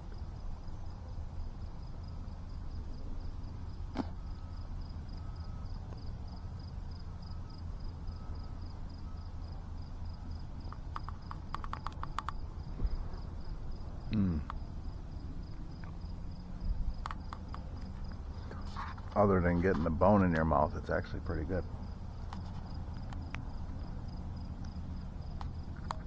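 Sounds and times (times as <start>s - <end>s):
insects chirping: 0.0s - 26.0s
sharp clicks: 10.6s - 12.4s, 14.4s - 14.6s, 17.0s - 18.2s.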